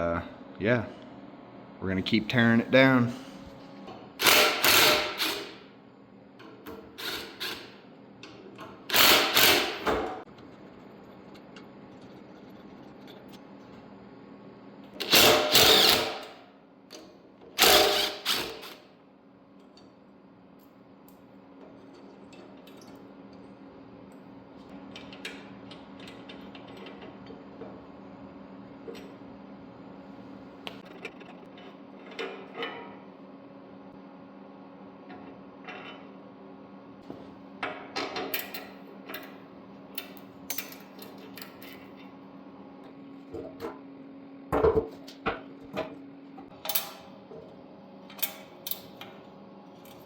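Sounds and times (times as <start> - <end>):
handheld power tool bursts: 4.2 - 5.5, 8.9 - 9.8, 15.0 - 16.2, 17.6 - 18.8.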